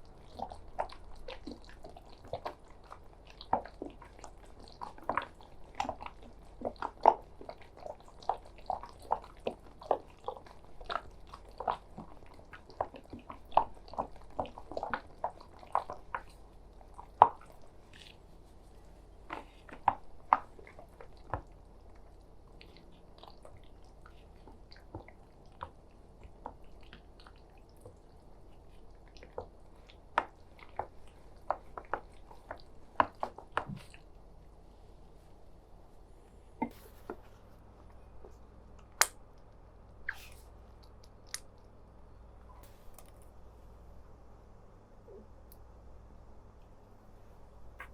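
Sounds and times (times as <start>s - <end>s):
wet sticky squelches of mixture: 0.0s - 37.4s.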